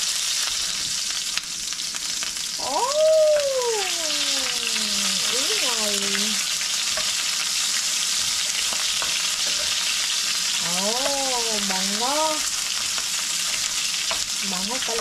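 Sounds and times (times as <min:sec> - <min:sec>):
onion sizzling in hot oil: 0:00.0 - 0:15.0
person speaking: 0:02.6 - 0:06.4, 0:10.6 - 0:12.4, 0:14.4 - 0:15.0.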